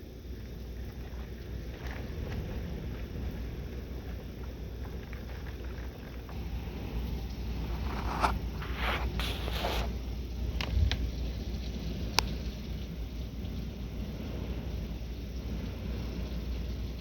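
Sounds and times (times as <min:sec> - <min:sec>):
wind and rain hissing: 0:00.0 - 0:17.0
wind buffeting microphone: 0:00.3 - 0:17.0.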